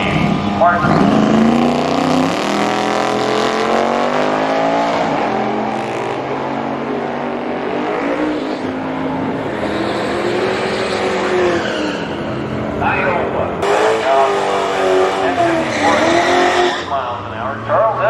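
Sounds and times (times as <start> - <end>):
racing engine accelerating: 0.0 - 18.0.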